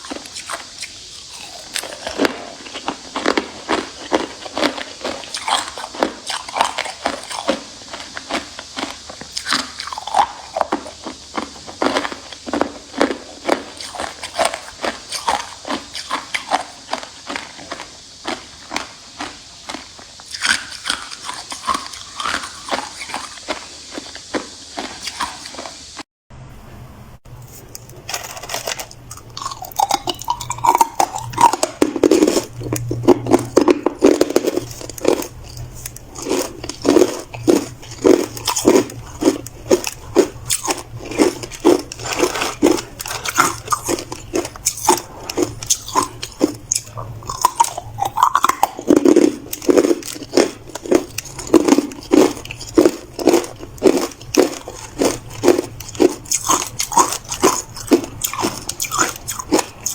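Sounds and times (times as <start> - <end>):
person crunching ice: 28.0 - 59.9.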